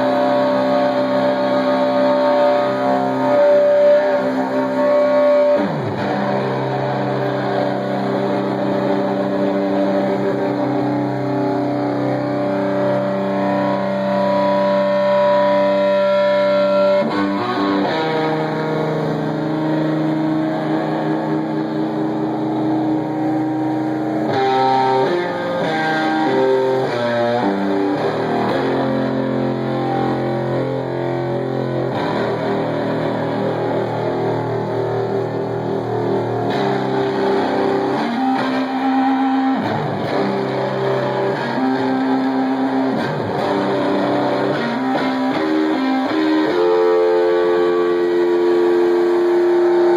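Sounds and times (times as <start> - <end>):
distorted electric guitar: 0.0 - 49.9
live metal band playing: 0.0 - 49.9.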